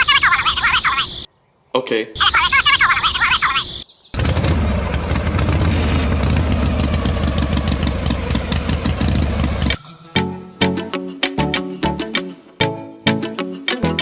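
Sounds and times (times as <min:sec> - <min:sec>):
engine chugging: 0:04.2 - 0:09.8
music with a beat: 0:10.2 - 0:14.0.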